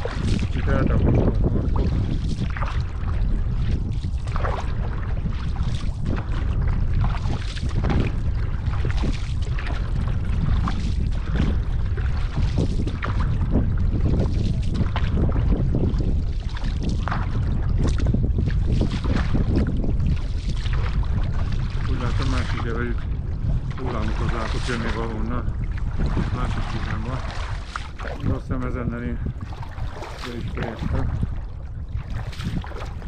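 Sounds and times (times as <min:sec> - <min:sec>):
paddle splashing water: 0:00.0 - 0:33.0
small waves against hull: 0:00.0 - 0:33.0
wind buffeting microphone: 0:00.0 - 0:33.0.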